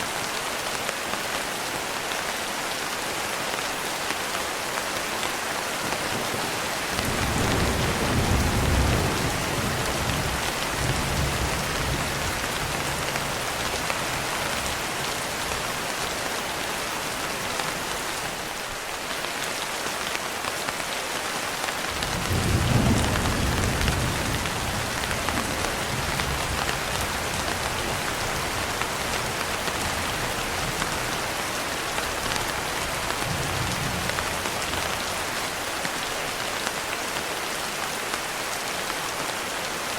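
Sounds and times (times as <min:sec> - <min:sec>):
heavy rain: 0:00.0 - 0:39.9
thunder rolling: 0:07.0 - 0:13.0.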